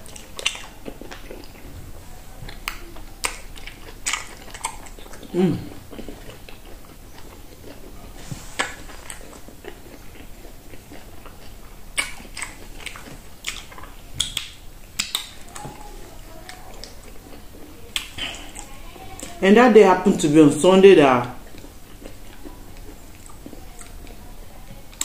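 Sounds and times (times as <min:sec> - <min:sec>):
person chewing food: 0:00.0 - 0:19.4, 0:21.2 - 0:25.0
wet mouth smacks and clicks: 0:12.0 - 0:15.4, 0:17.9 - 0:18.7.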